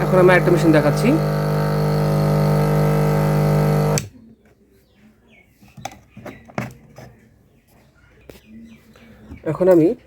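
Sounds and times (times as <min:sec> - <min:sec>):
compressor motor humming: 0:00.0 - 0:04.1.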